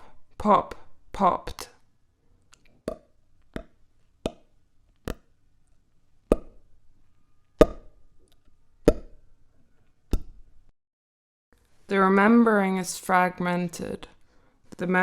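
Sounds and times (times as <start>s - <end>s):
hollow plops: 2.7s - 5.3s, 6.3s - 6.7s, 7.6s - 8.0s, 8.8s - 9.3s.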